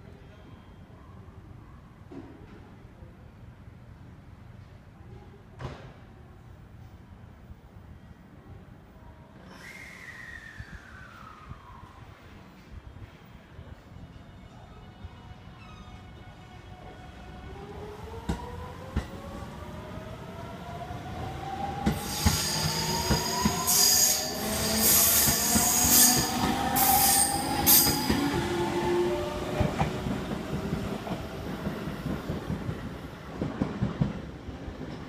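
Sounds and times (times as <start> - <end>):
high wheel squeal: 22.0 - 28.5.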